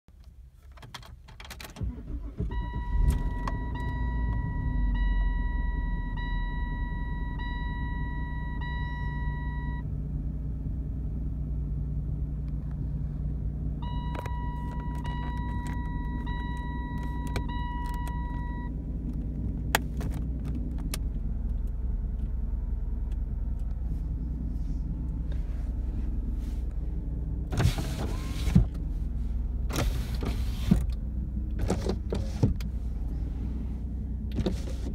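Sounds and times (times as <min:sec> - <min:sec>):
car engine starting and idling: 0:00.1 - 0:34.9
car warning chime: 0:01.9 - 0:09.9, 0:13.8 - 0:18.8.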